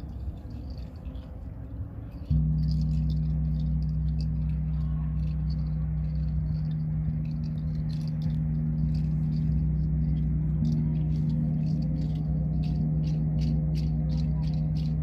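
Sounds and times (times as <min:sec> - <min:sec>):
steady low drone tone: 0:00.0 - 0:15.0.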